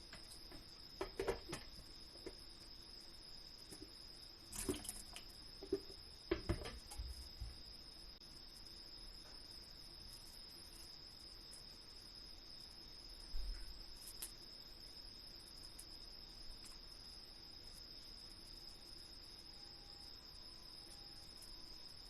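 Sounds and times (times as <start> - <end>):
insect trill: 0.0 - 22.0
kitchen knocks and clatters: 1.0 - 2.4, 5.6 - 7.2.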